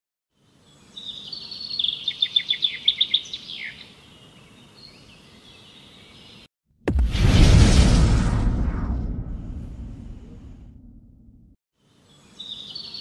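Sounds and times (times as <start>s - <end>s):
low steady forest ambience: 0.3s - 6.4s, 11.8s - 13.0s
songbird singing: 0.3s - 6.5s, 11.8s - 13.0s.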